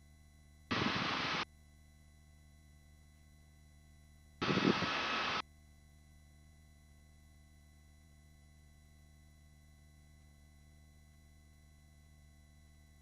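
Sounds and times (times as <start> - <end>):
faint electronic hum: 0.0 - 13.0
short bursts of hiss: 0.7 - 1.4, 4.4 - 5.4.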